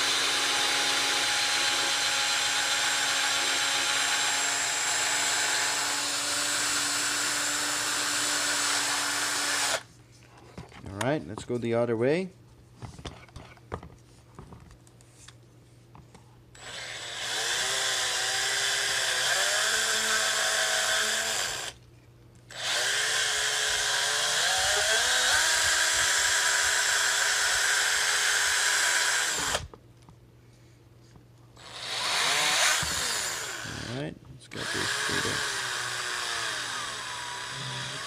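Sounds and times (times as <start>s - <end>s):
electric drill running: 0.0s - 9.9s, 16.6s - 21.8s, 22.5s - 29.7s, 31.6s - 34.0s, 34.6s - 38.0s.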